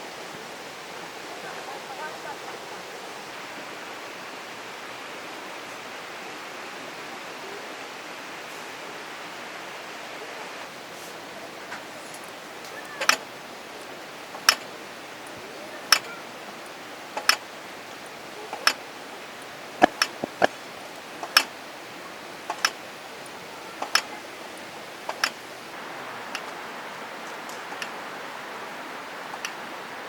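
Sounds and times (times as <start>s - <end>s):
low hiss: 0.0s - 30.0s
sharp taps: 19.8s - 20.6s.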